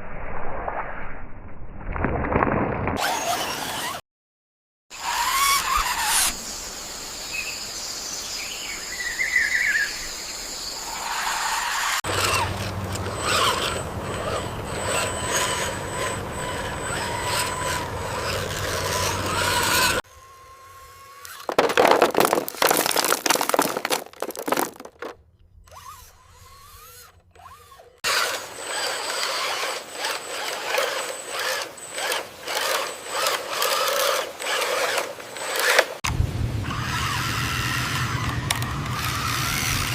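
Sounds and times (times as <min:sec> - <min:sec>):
toy electric motors whining: 0:03.0 - 0:04.0, 0:04.9 - 0:06.6, 0:10.8 - 0:36.0, 0:36.7 - 0:39.9.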